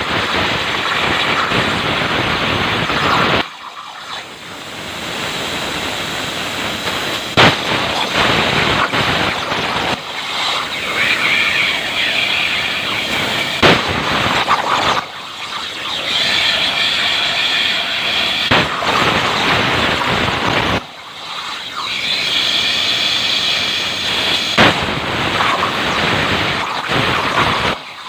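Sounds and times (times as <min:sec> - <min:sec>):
plasma cutter torch hissing: 0:00.0 - 0:28.0
sharp loud cracks: 0:07.3 - 0:17.0, 0:18.4 - 0:21.2, 0:24.5 - 0:26.0.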